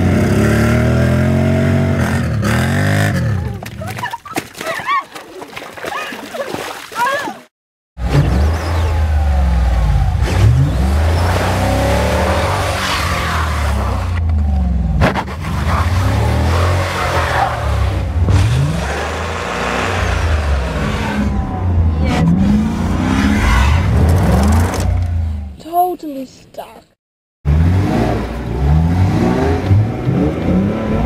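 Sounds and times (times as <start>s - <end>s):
car engine revving: 8.0s - 25.5s, 27.5s - 31.0s.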